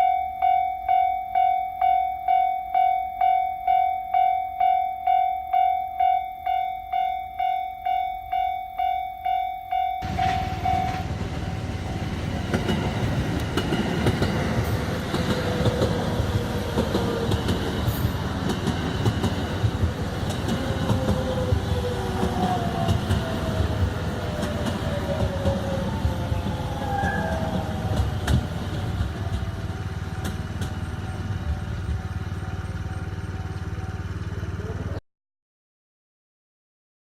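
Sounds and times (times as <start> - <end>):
train clicks: 10.0 - 34.6
train rumbling on track: 10.0 - 35.0.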